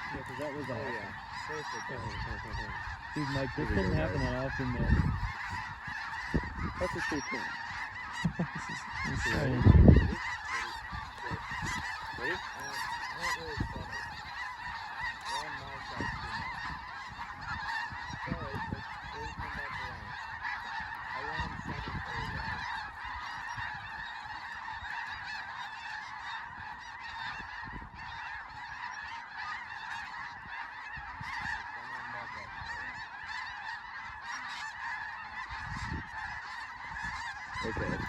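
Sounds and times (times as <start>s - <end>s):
flock of geese honking: 0.0s - 38.0s.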